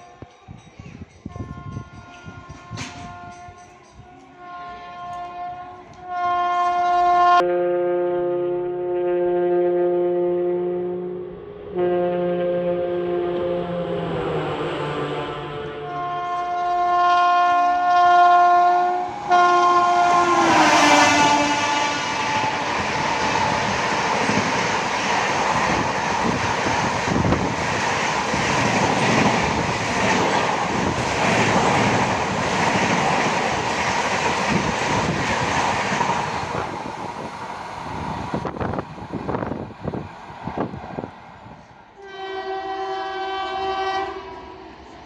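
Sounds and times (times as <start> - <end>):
train coaches rushing and clattering: 0.0 - 6.9, 14.0 - 42.8
train horn blast: 1.3 - 26.4, 41.9 - 44.9.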